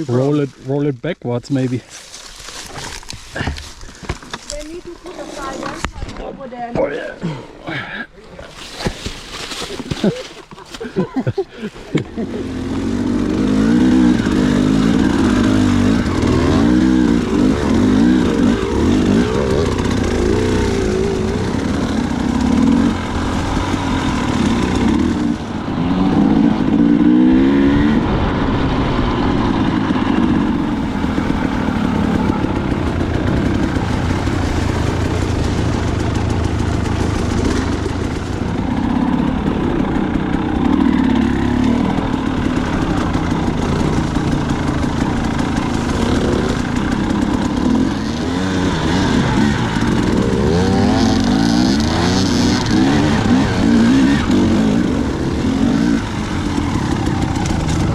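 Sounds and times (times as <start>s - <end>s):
dirt bike engine revving: 12.0s - 57.9s.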